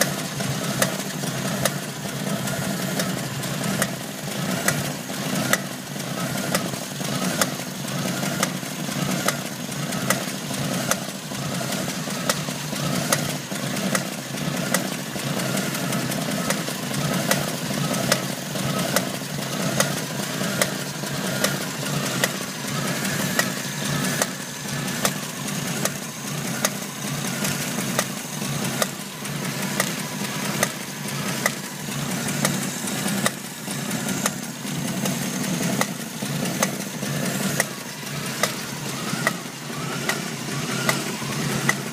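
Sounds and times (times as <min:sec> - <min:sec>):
engine idling: 0:00.0 - 0:41.9
sharp engine knock: 0:03.7 - 0:05.8, 0:12.2 - 0:41.9.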